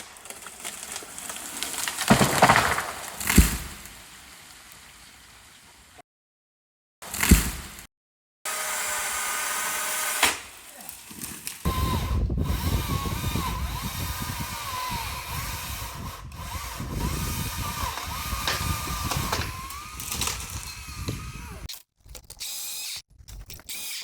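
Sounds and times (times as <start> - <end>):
electric chainsaw cutting branches: 8.5 - 21.7.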